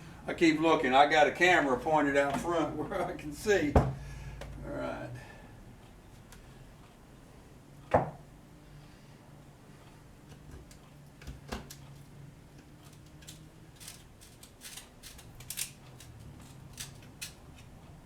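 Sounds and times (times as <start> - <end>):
low steady hum: 0.0 - 18.0
hand tools clicking and scraping: 12.6 - 17.8.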